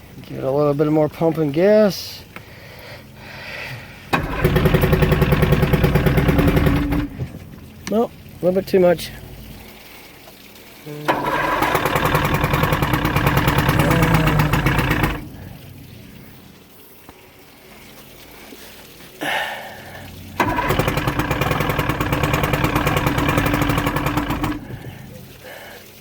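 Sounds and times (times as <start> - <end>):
outboard motor cranking: 3.8 - 16.7, 19.2 - 25.8
short burst of engine sound: 11.1 - 16.0.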